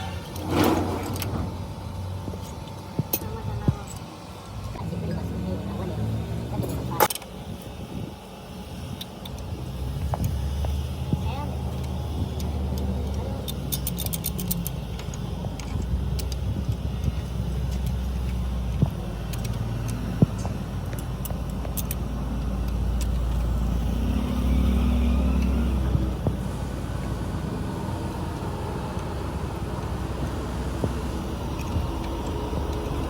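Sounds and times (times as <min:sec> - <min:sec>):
low mechanical rumble: 0:00.0 - 0:33.0
metallic clicks: 0:11.8 - 0:23.5.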